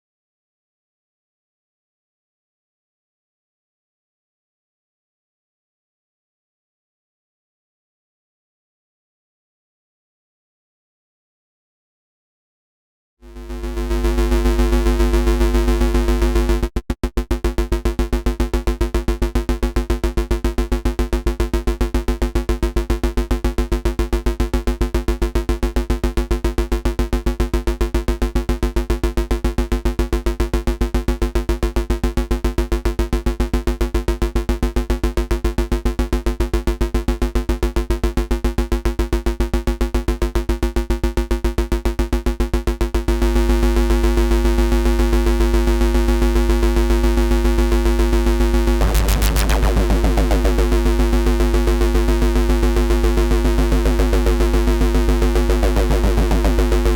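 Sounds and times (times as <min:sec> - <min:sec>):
buzzy synth bass note: 0:13.4 - 0:23.5, 0:42.3 - 0:56.9.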